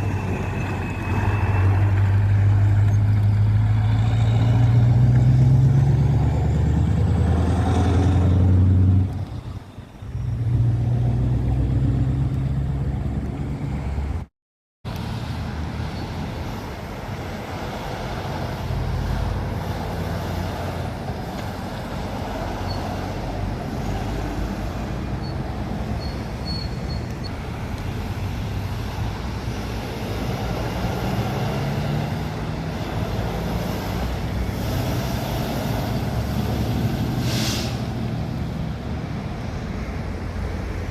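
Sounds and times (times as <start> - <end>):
diesel engine low rumble: 0.0 - 14.2
heavy trucks driving by: 0.0 - 14.3, 14.9 - 40.9
traffic and tyre noise: 0.0 - 40.9.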